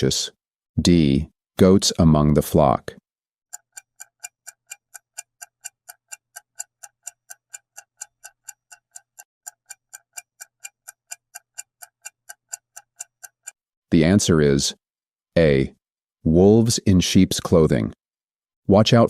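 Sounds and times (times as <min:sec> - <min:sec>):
clock ticking: 0:03.5 - 0:13.6.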